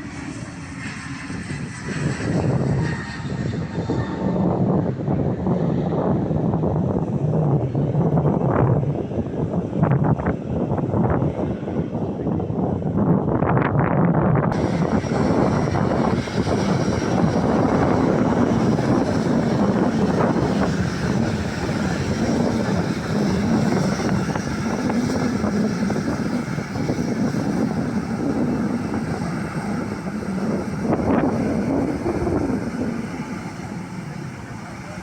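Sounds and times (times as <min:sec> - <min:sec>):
airliner engines passing: 0:00.0 - 0:35.0.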